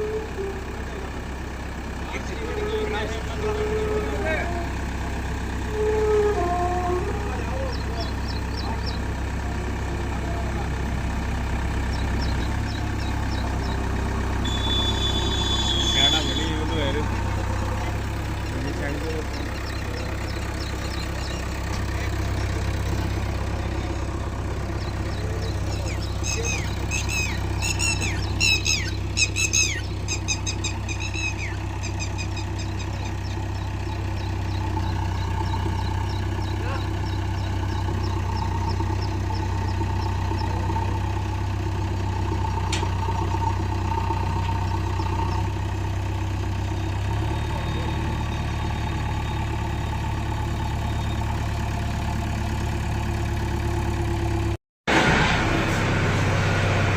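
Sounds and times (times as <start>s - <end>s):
truck engine idling: 0.0s - 56.9s
high sharp squawks: 14.4s - 17.2s, 24.8s - 33.2s.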